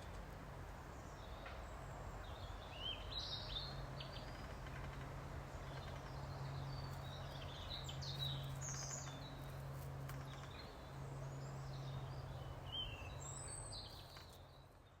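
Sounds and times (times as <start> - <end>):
outdoor background noise: 0.0 - 15.0
small birds chirping: 5.7 - 14.7.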